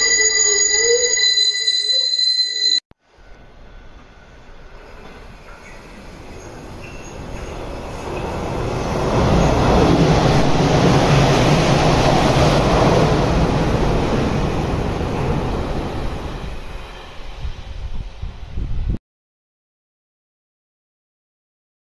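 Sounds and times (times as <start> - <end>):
electric train wheels rumbling: 0.0 - 19.0.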